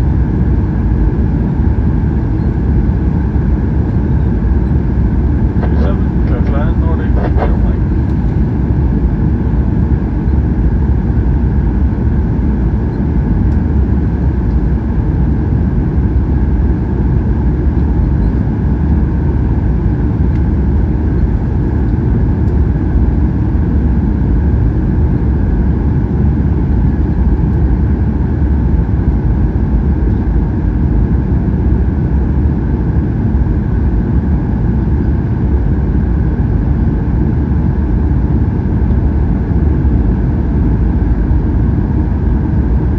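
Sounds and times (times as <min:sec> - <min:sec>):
airplane cabin roar: 0:00.0 - 0:42.9.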